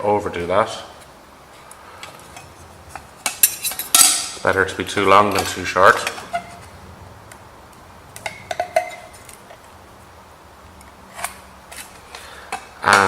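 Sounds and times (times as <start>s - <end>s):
steady low hum: 0.0s - 13.0s
metal tools clinking: 2.2s - 6.7s.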